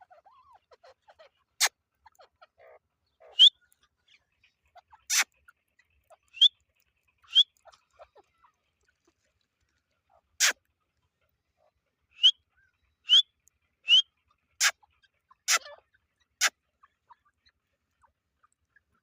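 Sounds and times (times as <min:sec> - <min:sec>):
partridge sharp calls: 0:01.6 - 0:03.6, 0:04.8 - 0:05.4, 0:06.3 - 0:06.6, 0:07.2 - 0:07.8, 0:12.1 - 0:12.4, 0:13.0 - 0:15.8.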